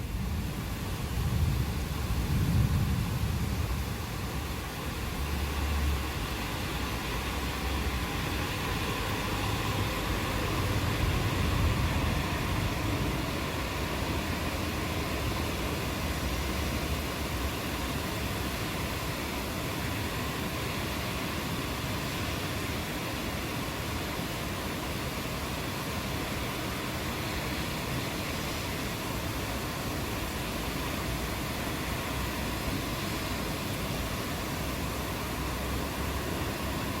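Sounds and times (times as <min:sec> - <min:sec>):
rain hiss: 0:00.0 - 0:37.0
distant thunder rumbling: 0:01.1 - 0:04.0.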